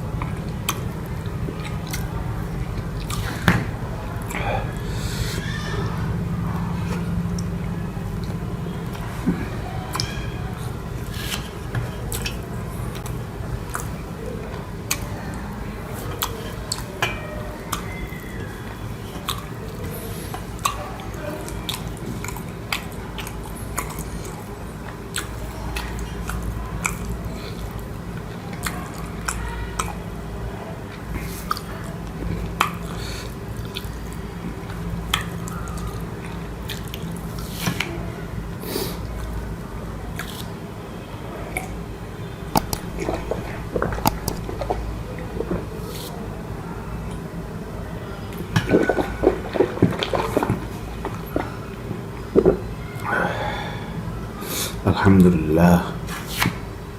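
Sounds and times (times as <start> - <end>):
person chewing food: 0.0 - 5.5, 6.6 - 30.2, 31.1 - 37.9, 40.1 - 40.6, 42.4 - 46.3, 48.3 - 53.7
steady low hum: 0.0 - 56.9
wet mouth clicks and smacks: 0.2 - 3.4, 12.1 - 14.0, 21.5 - 24.4, 25.1 - 30.0, 40.1 - 40.6, 42.5 - 46.2.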